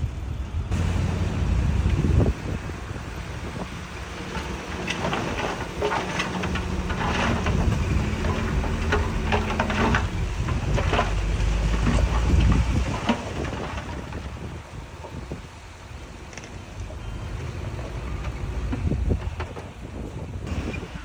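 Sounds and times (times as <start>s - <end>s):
heavy diesel engine running: 0.0s - 21.0s
stones rattling against steel: 3.7s - 14.6s.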